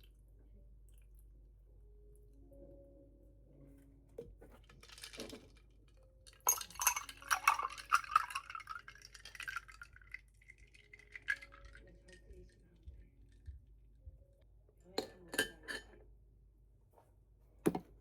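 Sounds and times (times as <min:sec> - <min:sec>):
glassware and dishes clinking: 0:06.3 - 0:09.8, 0:15.0 - 0:16.0.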